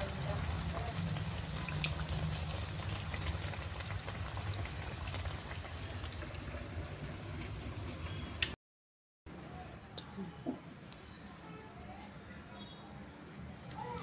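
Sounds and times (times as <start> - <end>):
food sizzling in hot oil: 0.0 - 8.6
oil popping: 0.0 - 8.6.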